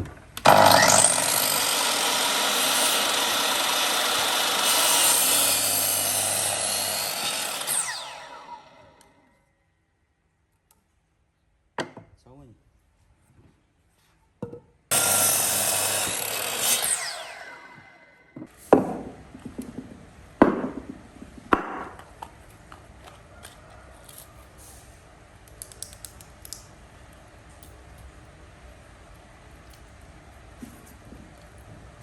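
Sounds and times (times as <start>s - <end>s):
power tool spinning down: 0.4s - 9.1s, 14.9s - 18.1s.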